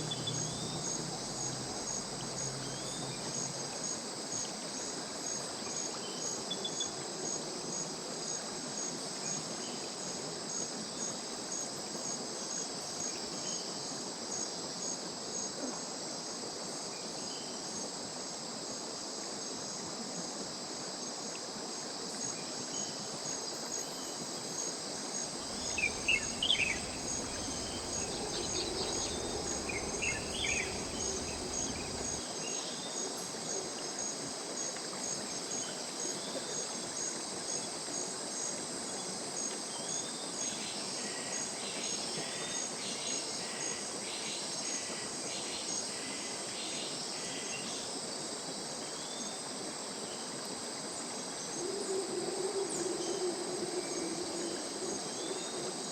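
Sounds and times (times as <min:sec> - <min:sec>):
insects trilling: 0:00.0 - 0:03.8, 0:25.2 - 0:32.2
stream flowing: 0:00.0 - 0:03.9, 0:25.4 - 0:32.2
bird chirps: 0:25.5 - 0:32.2
repeated bird calls: 0:25.5 - 0:32.2.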